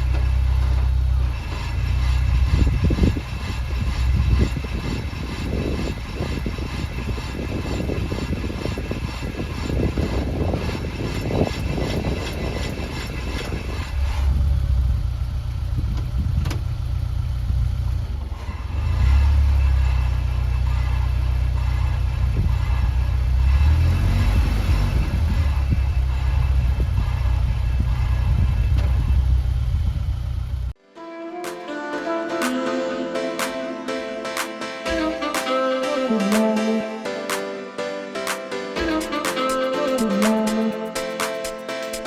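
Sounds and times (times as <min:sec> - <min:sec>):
car engine running: 0:00.0 - 0:30.8.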